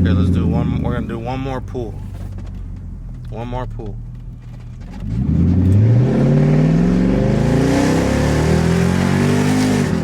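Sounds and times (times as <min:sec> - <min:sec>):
car engine accelerating hard: 0:04.4 - 0:10.0.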